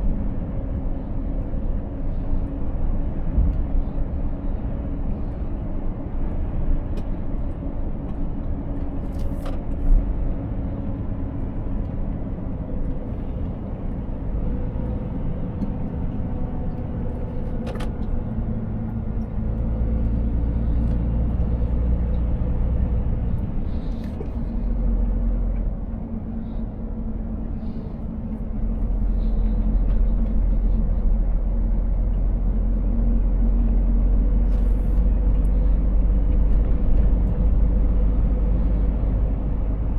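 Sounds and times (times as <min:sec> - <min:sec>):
low road rumble: 0:00.0 - 0:39.9
truck diesel engine running: 0:09.8 - 0:39.9.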